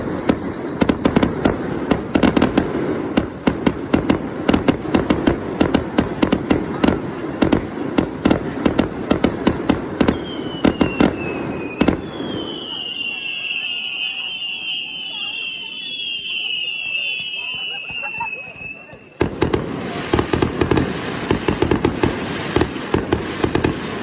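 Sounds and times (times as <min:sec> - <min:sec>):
fireworks popping and crackling: 0:00.0 - 0:24.0
faint falling whistle: 0:10.2 - 0:19.2.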